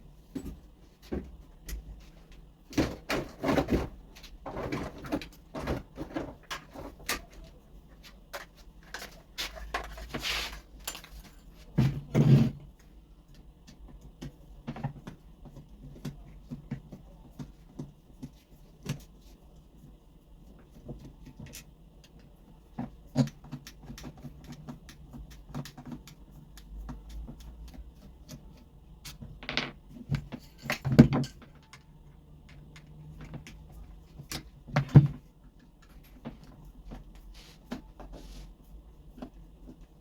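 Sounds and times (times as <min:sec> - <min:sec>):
parts and tools clicking and scraping: 0:01.6 - 0:12.6, 0:23.1 - 0:38.2.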